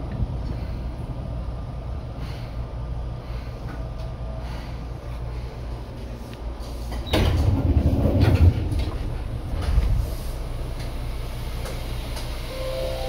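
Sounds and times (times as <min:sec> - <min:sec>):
train rumbling from inside: 0:00.0 - 0:13.0.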